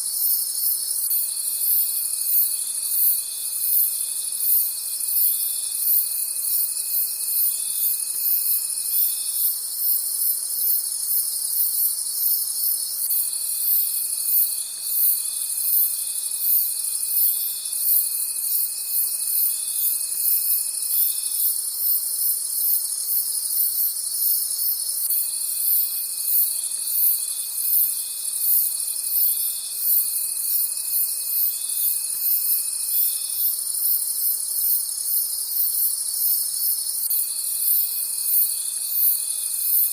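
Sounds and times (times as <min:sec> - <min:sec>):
crickets chirping: 0:00.0 - 0:39.9
thin insect tone: 0:00.0 - 0:39.9.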